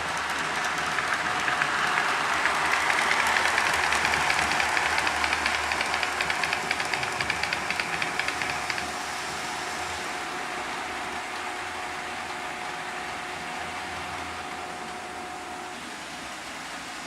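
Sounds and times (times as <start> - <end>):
wheels clicking over rail joints: 0.0 - 9.0
faint motor whine: 0.0 - 17.0
model train running on track: 0.0 - 17.0.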